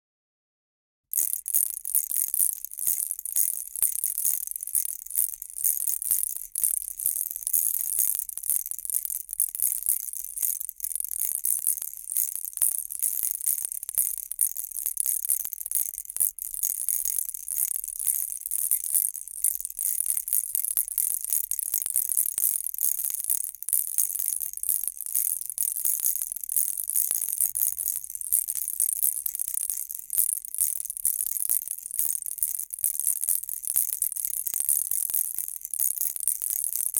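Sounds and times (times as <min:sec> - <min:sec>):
baby rattle shaken: 0:01.1 - 0:24.8.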